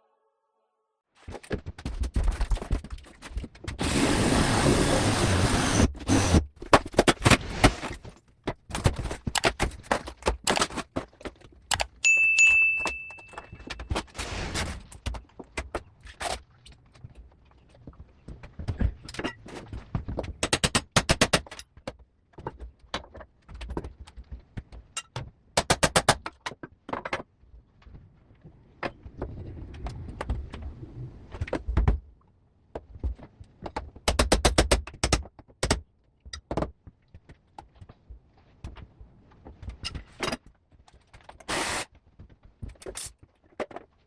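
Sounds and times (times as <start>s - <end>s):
knocks and clatter of tools: 6.6s - 14.2s, 18.4s - 28.0s, 39.4s - 41.4s, 42.2s - 44.0s.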